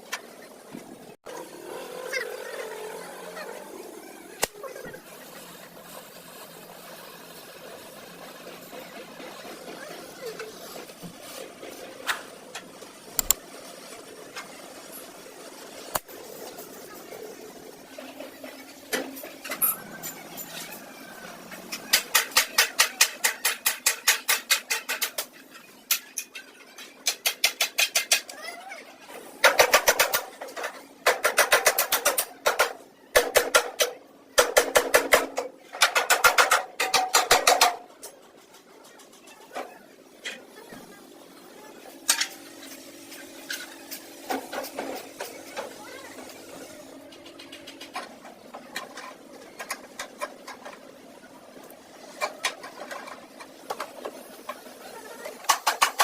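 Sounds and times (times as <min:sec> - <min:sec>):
steady background noise: 0:00.0 - 0:56.0.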